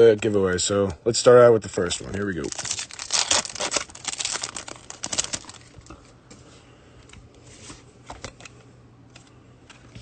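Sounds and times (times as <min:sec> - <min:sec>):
foil wrapper crinkling: 0:01.9 - 0:06.0
trading cards rustling: 0:02.0 - 0:05.9.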